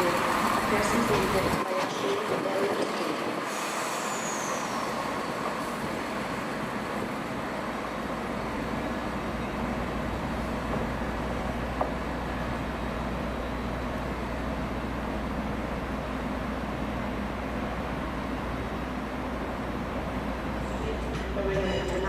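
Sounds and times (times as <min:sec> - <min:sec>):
train running rumble: 0:00.0 - 0:22.0.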